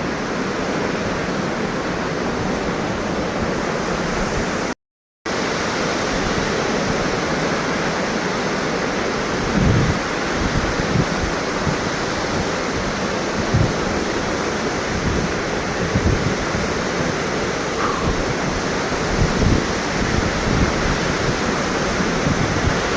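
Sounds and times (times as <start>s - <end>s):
waterfall rushing: 5.3s - 22.9s
wind gusts on microphone: 5.3s - 22.9s.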